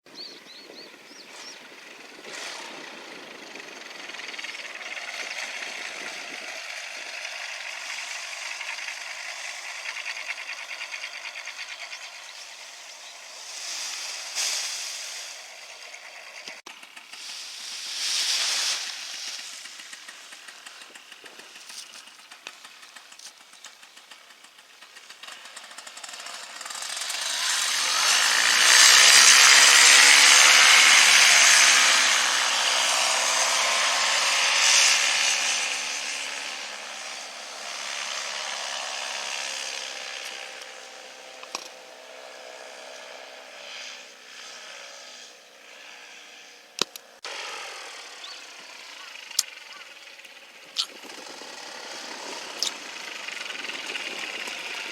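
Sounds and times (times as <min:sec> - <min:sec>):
wind buffeting microphone: 0:00.1 - 0:07.2, 0:50.7 - 0:54.9.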